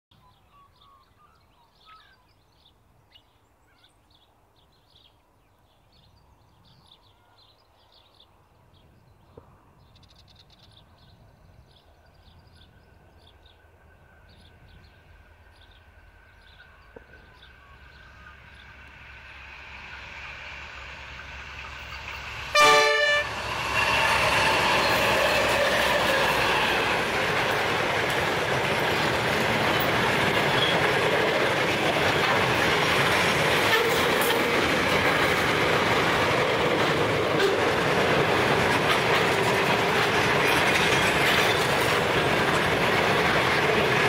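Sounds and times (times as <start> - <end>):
diesel locomotive rumble: 14.4 - 44.0.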